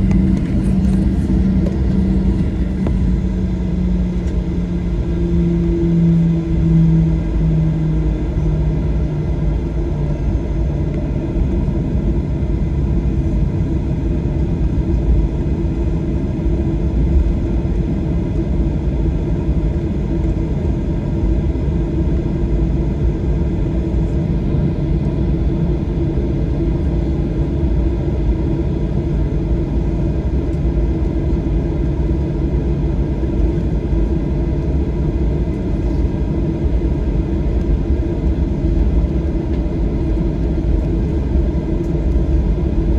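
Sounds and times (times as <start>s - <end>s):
aircraft cabin rumble: 0.0s - 42.9s.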